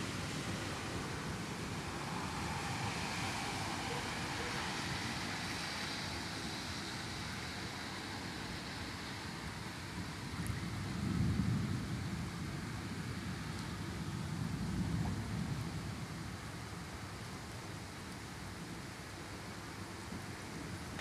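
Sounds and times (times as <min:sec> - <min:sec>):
heavy rain: 0:00.0 - 0:21.0
strong wind: 0:00.0 - 0:21.0
thunder rumble: 0:10.4 - 0:16.4.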